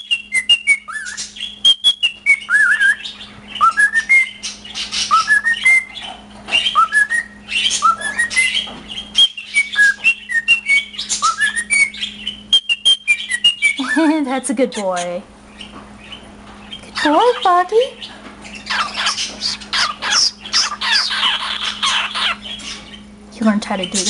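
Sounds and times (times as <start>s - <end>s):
cockatiel whistling: 0.0s - 14.0s, 18.5s - 23.0s.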